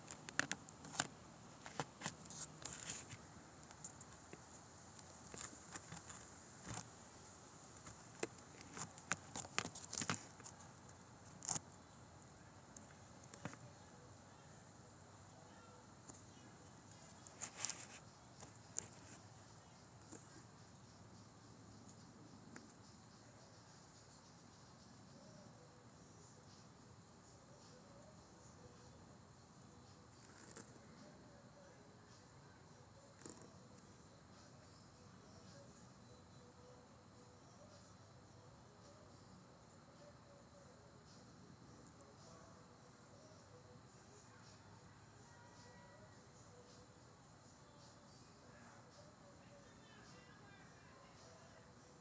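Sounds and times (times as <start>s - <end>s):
scattered clicks and rustles: 0.0s - 11.6s, 16.9s - 19.2s
night insects trilling: 0.0s - 52.0s.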